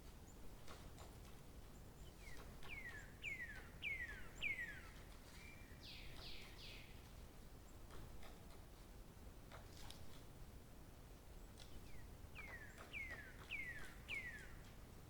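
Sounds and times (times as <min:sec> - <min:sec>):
faint outdoor background hiss: 0:00.0 - 0:15.0
songbird singing: 0:01.8 - 0:07.1, 0:11.6 - 0:14.8.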